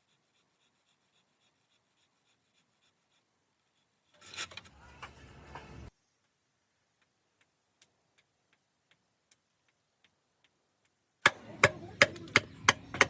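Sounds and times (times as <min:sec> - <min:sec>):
faint irregular ticks: 0:00.0 - 0:04.2
hammer blows ringing: 0:11.2 - 0:13.0.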